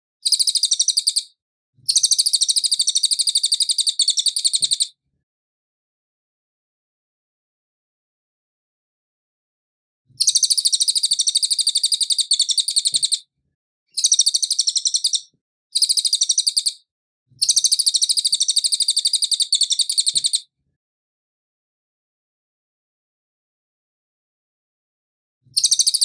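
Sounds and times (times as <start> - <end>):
songbird rattling trill: 0.2 - 1.3, 1.9 - 4.9, 10.2 - 13.2, 14.0 - 16.8, 17.4 - 20.4, 25.6 - 26.0.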